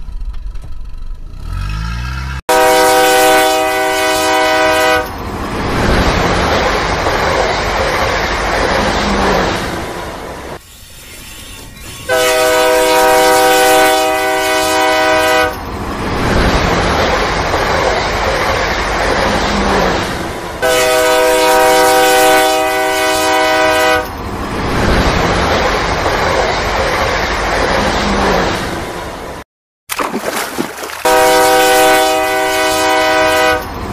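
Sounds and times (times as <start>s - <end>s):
train rumble and clatter: 0.0s - 1.6s, 4.3s - 13.7s, 14.4s - 29.4s, 31.1s - 33.9s
multi-note train horn: 2.5s - 5.2s, 12.1s - 15.6s, 20.6s - 24.2s, 31.0s - 33.9s.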